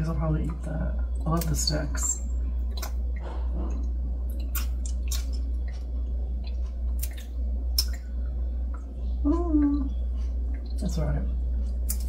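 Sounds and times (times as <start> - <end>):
person chewing crisp herb stems: 2.8 - 8.0.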